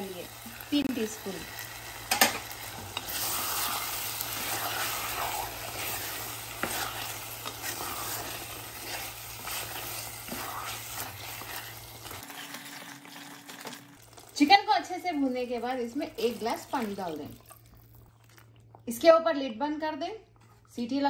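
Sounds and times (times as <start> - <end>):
chicken sizzling in a pot: 0.0 - 17.3
spatula scraping a pan: 2.1 - 12.9.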